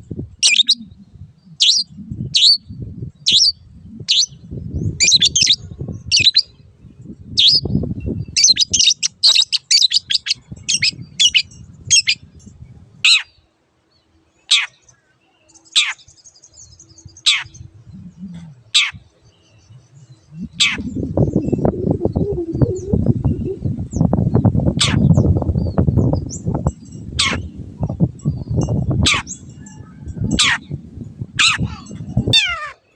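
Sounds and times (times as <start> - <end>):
bird singing high chirping notes: 0.4 - 12.3, 19.3 - 32.6
low rumble: 17.6 - 18.6, 19.5 - 32.4.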